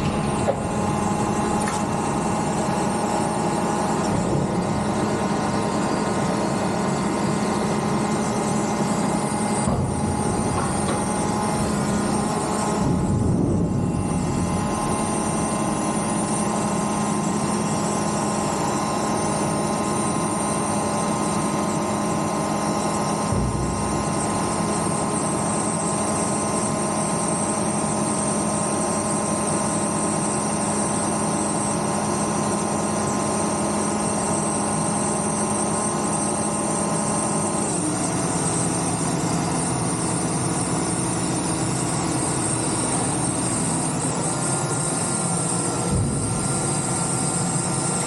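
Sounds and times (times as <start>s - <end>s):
large vehicle engine running: 0.0s - 19.2s, 20.9s - 26.6s, 40.6s - 48.0s.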